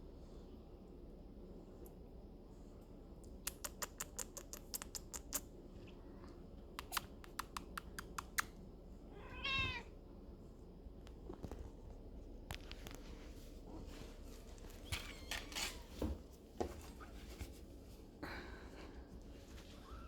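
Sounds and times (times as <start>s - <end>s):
kitten mewing: 9.2s - 9.9s.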